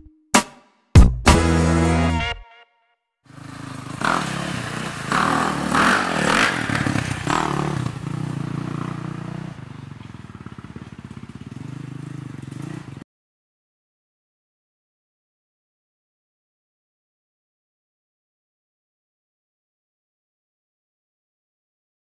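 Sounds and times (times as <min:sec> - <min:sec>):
quad engine revving: 0:03.3 - 0:13.0.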